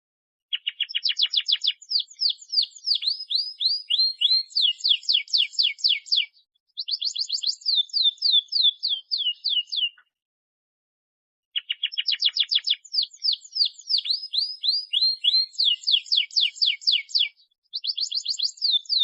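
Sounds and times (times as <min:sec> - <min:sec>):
canary singing: 0:00.5 - 0:10.1, 0:11.6 - 0:19.0.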